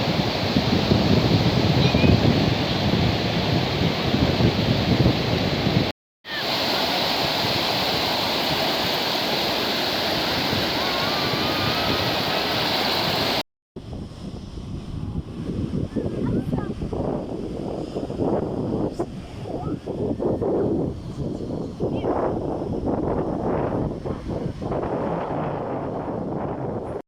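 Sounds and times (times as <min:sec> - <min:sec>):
sea surf washing ashore: 0:00.0 - 0:20.1
wind buffeting microphone: 0:00.0 - 0:27.0.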